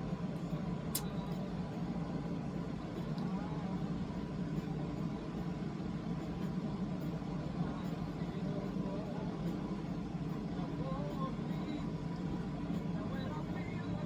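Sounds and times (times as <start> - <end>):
low background hum: 0.0 - 14.0
faint click: 0.9 - 1.1.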